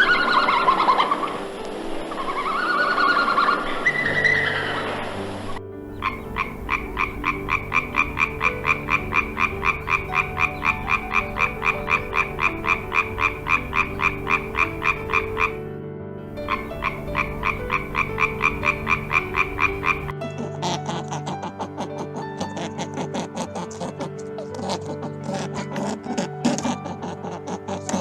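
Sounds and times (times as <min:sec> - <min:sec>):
frog croaking rapidly: 0:00.0 - 0:15.6, 0:16.4 - 0:28.0
steady low drone: 0:00.0 - 0:20.2.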